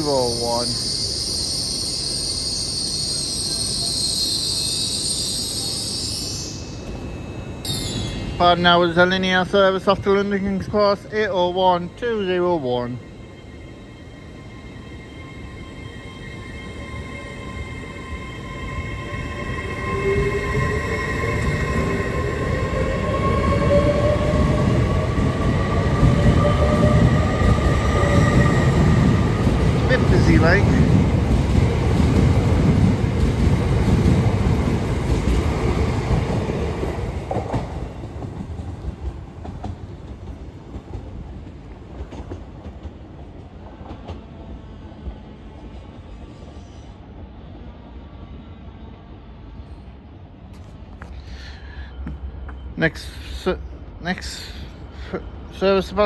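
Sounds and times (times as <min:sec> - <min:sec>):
train wheels and brakes squealing: 0:00.0 - 0:11.1, 0:11.7 - 0:37.9, 0:44.8 - 0:50.0
low train rumble: 0:00.0 - 0:56.0.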